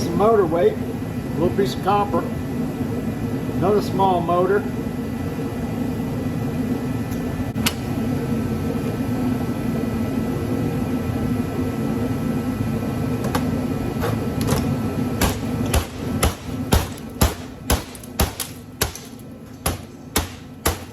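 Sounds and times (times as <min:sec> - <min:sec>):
machine humming: 0:04.6 - 0:20.9.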